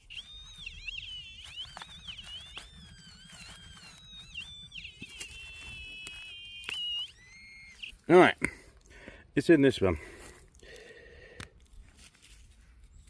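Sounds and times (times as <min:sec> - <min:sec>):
metal detector tone: 0:00.0 - 0:08.6.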